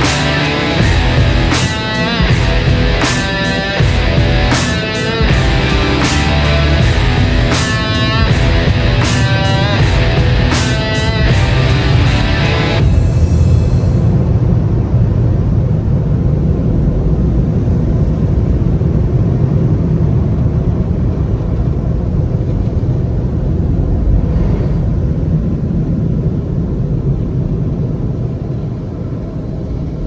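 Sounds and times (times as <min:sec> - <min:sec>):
car wash machinery rumbling: 0:00.0 - 0:19.4.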